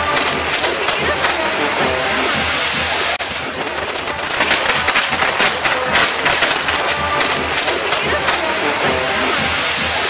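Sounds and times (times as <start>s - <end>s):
hiss of firework spark fountains: 0.0s - 10.0s
rapid crackling pops: 3.6s - 8.5s.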